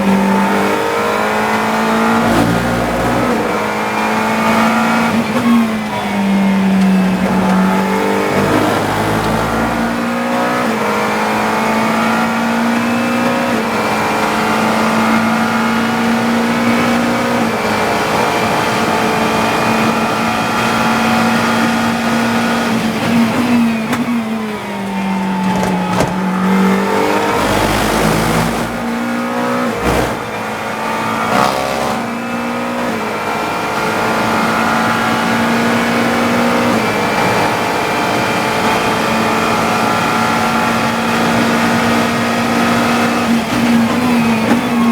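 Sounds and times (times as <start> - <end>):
race car engine at full throttle: 0.0 - 44.9
sharp knocks: 25.4 - 27.6.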